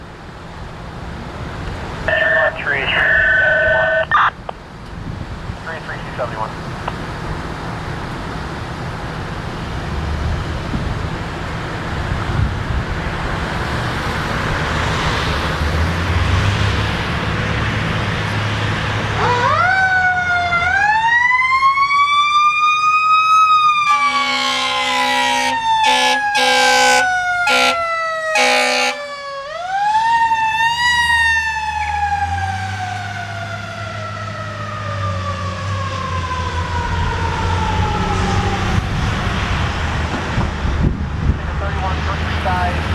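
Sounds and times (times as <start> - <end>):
fire engine and road noise: 0.0 - 42.9
siren wailing: 2.1 - 4.4, 19.2 - 39.0
air horn blasts: 23.9 - 29.1.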